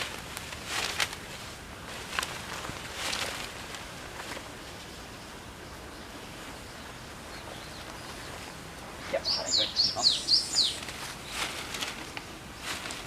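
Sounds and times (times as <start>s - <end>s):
faint outdoor hiss: 0.0s - 13.0s
small songbird singing: 5.2s - 11.3s.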